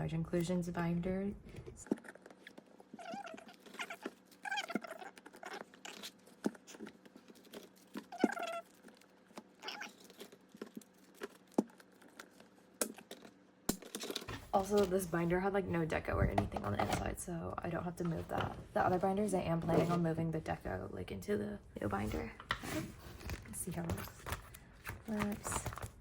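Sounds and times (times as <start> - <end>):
plastic pages clicking and rustling: 5.1 - 15.0, 23.2 - 26.0.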